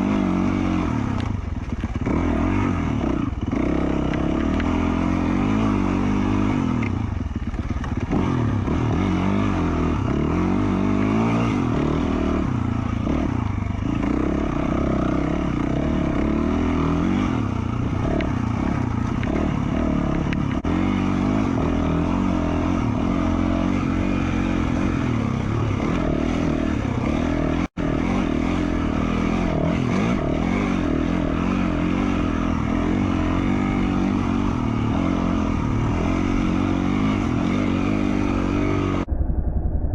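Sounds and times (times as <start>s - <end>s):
dirt bike engine revving: 0.0s - 39.1s.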